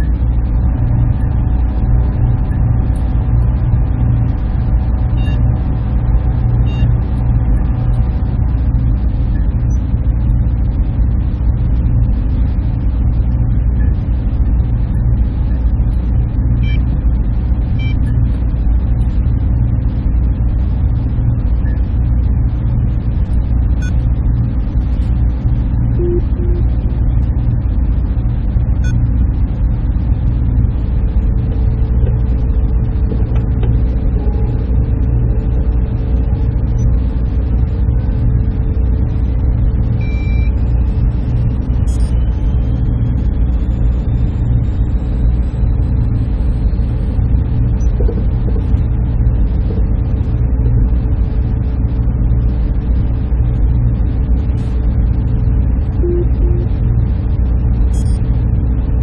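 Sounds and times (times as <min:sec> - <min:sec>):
cooling fans humming: 0:00.0 - 0:59.0
short beeps: 0:05.2 - 0:05.4, 0:06.6 - 0:06.9, 0:16.6 - 0:16.8, 0:17.8 - 0:18.2, 0:23.8 - 0:24.0, 0:26.0 - 0:26.7, 0:40.0 - 0:40.5, 0:41.9 - 0:42.2, 0:56.0 - 0:56.8, 0:57.9 - 0:58.2
low drone: 0:19.3 - 0:59.0
faint held tone: 0:26.0 - 0:26.7, 0:56.0 - 0:56.8.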